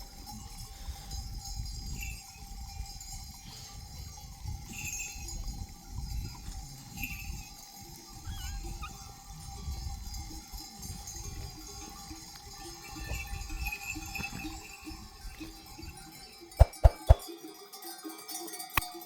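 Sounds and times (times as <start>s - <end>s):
sheep bells clinking: 0.0s - 19.0s
sharp knocks: 16.6s - 17.2s.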